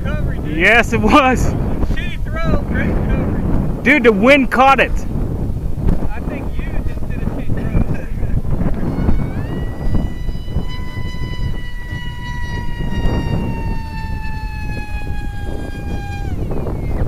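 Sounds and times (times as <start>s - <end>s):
wind rumble on microphone: 0.0s - 17.0s
electric propeller whining: 8.4s - 17.0s.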